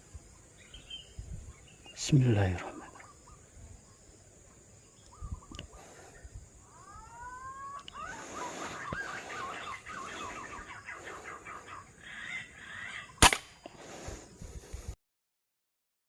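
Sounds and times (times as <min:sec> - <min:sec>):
birds calling: 0:00.0 - 0:14.8
air rifle firing: 0:13.2 - 0:13.6.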